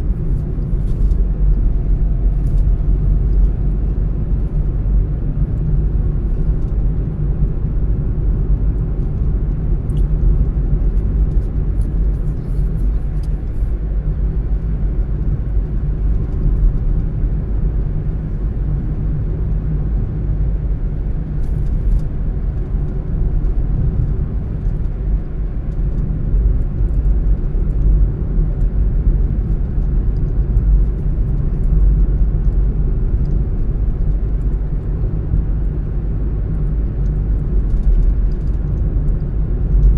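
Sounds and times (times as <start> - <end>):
road and engine rumble: 0.0 - 39.9
faint light ticks: 36.5 - 39.9.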